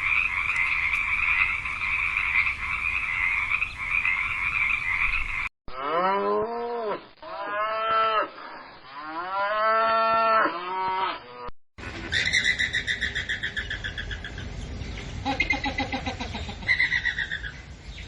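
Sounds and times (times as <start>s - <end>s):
frog chorus: 0.0s - 5.5s.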